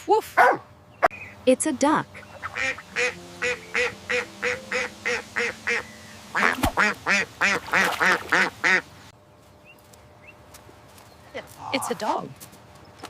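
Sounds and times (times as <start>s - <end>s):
duck quacking: 2.2s - 8.9s.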